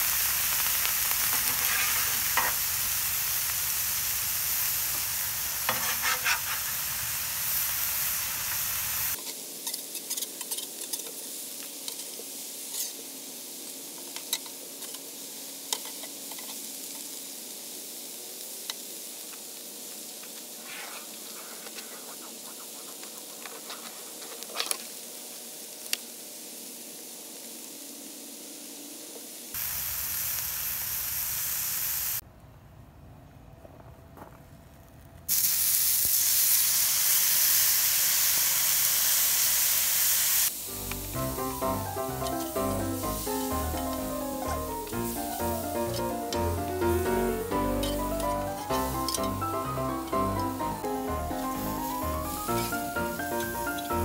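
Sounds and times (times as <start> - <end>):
food sizzling on a griddle: 0.0 - 32.2, 35.3 - 54.0
metal spatula scraping griddle: 1.2 - 2.6, 5.6 - 6.9, 9.2 - 11.2, 11.9 - 13.0, 20.6 - 24.8, 45.8 - 50.6.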